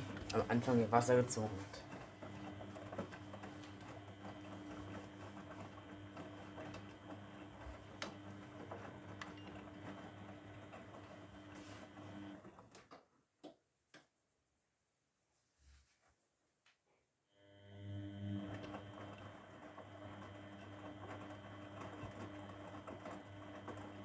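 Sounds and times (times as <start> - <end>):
washing machine filling with water: 0.0 - 12.4, 17.5 - 24.0.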